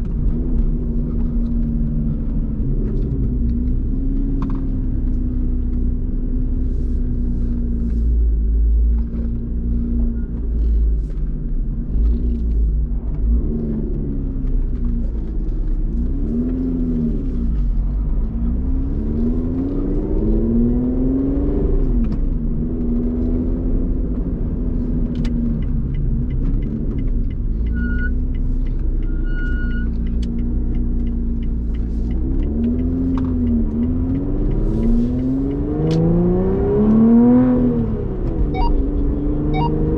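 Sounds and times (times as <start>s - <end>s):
car engine revving: 0.0s - 39.9s
short beeps: 38.5s - 38.8s, 39.5s - 39.9s.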